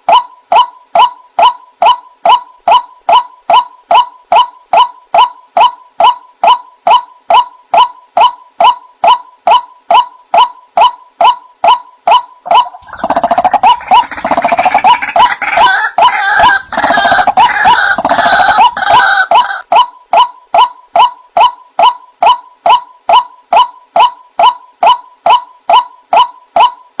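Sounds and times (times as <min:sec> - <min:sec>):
waterhen calling: 0:12.1 - 0:19.6.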